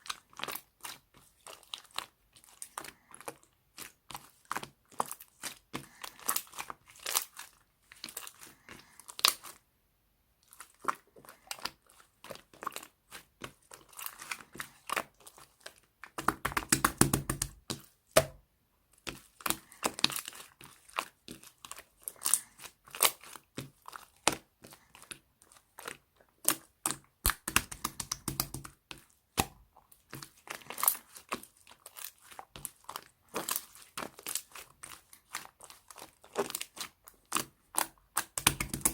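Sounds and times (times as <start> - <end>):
slime squished by hand: 19.1 - 38.9.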